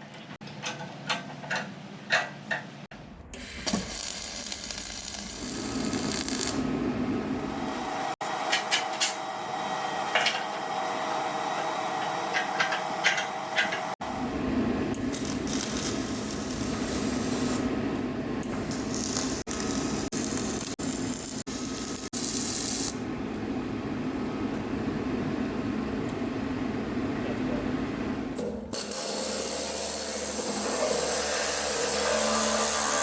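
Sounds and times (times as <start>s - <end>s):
welding crackling hiss: 3.4s - 6.6s, 15.0s - 17.7s, 18.4s - 23.0s, 28.8s - 33.0s.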